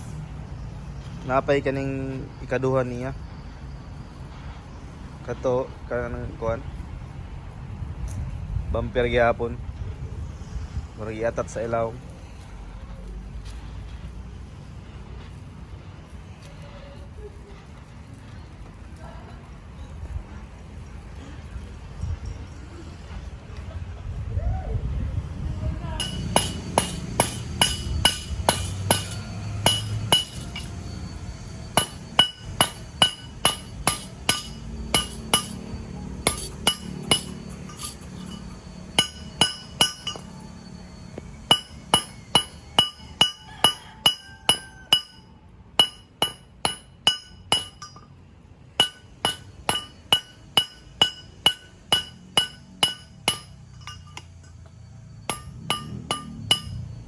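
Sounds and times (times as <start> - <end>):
hammer striking metal: 26.0 - 40.5, 41.4 - 48.1, 48.8 - 54.7, 55.3 - 57.0.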